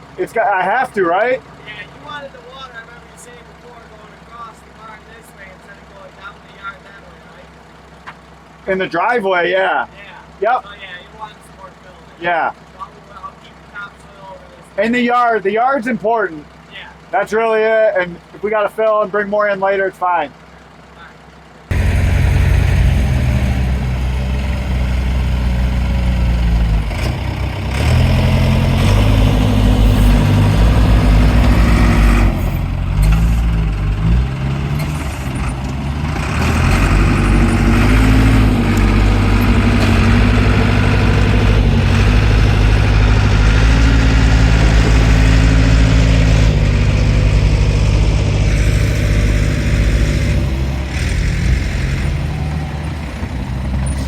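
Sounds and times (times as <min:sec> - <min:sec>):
backhoe engine running under load: 0:01.2 - 0:15.1, 0:16.3 - 0:19.0, 0:20.3 - 0:54.0.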